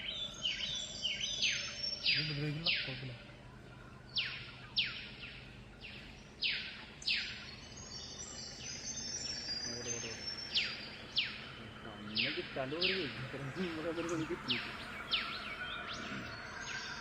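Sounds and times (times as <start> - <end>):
high bird chirps: 0.0 - 17.0
animal high noisy calls: 9.4 - 17.0.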